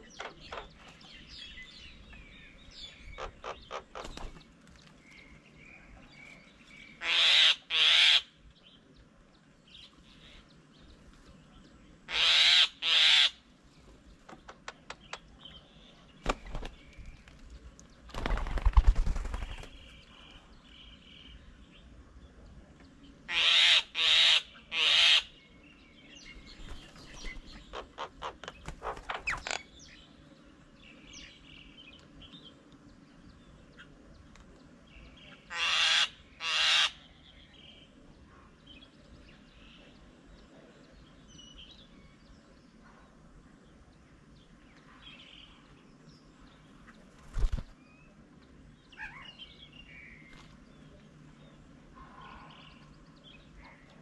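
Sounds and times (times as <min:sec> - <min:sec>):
birds calling harshly: 0:00.0 - 0:08.5, 0:12.0 - 0:17.4, 0:23.2 - 0:32.3, 0:33.6 - 0:38.0, 0:46.4 - 0:48.0, 0:48.7 - 0:54.0
birds chattering: 0:00.0 - 0:54.0.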